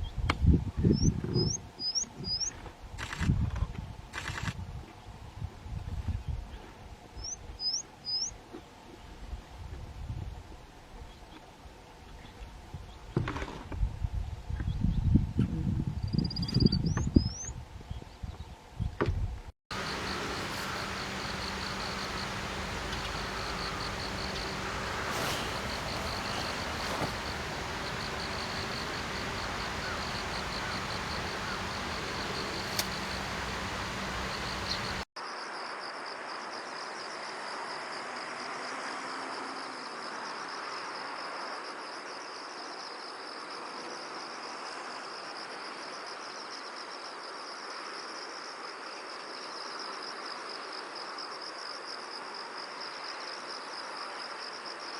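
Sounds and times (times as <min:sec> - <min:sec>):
insects trilling: 0:19.7 - 0:35.0
low steady hum: 0:19.7 - 0:35.0
sharp clicks: 0:25.6 - 0:35.0.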